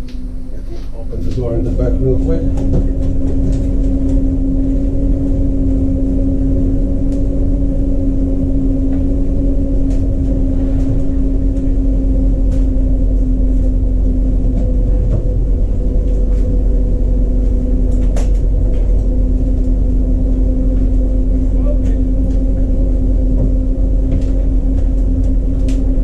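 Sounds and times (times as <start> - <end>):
low rumble: 0.0 - 26.0
steady machine hum: 0.0 - 26.0.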